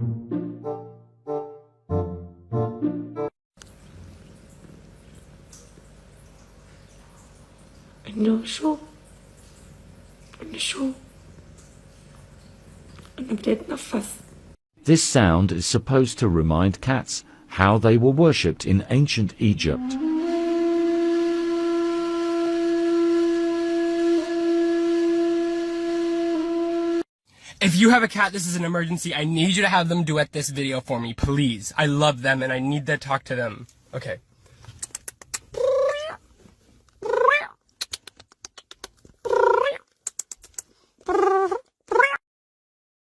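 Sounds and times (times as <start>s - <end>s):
long horn-like note: 20.0s - 27.0s
cat meowing: 35.6s - 36.2s, 37.0s - 37.6s, 41.1s - 42.2s.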